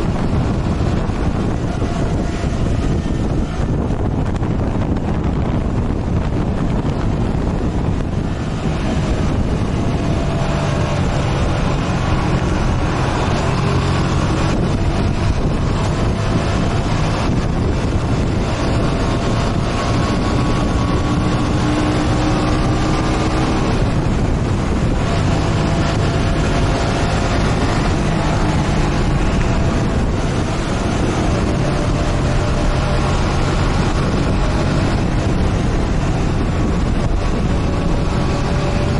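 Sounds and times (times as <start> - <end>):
motorcycle engine running: 0.0 - 38.9
wind rushing over microphone: 0.0 - 38.9.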